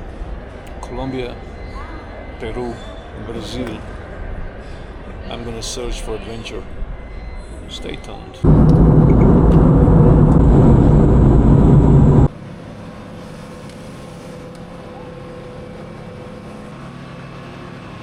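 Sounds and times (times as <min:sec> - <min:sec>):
steady hum: 0:08.4 - 0:12.3
vehicle engine noise: 0:08.4 - 0:12.3.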